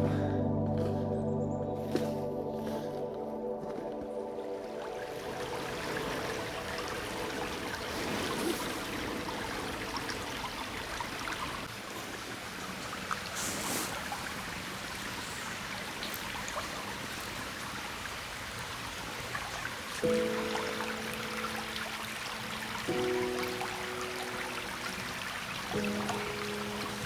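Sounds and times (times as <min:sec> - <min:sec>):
water rushing over rocks: 0:04.6 - 0:12.4.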